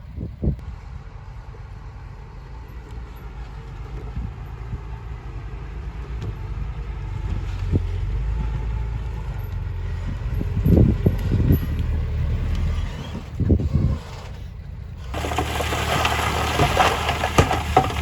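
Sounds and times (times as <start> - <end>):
heavy diesel engine rumbling: 0.0 - 18.0
clanks: 15.0 - 18.0.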